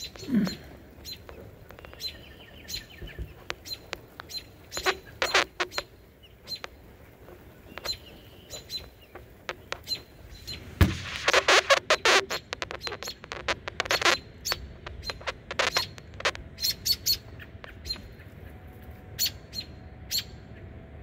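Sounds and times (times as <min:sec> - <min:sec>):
small birds chirping: 0:00.0 - 0:20.7
sharp clicks: 0:01.1 - 0:05.9, 0:10.8 - 0:18.0.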